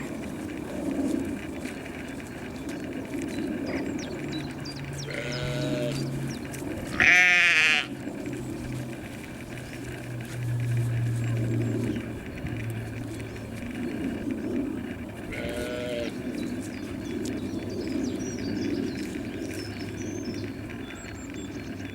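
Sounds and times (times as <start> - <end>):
low steady drone: 0.0 - 21.9
animal calling: 4.7 - 8.0.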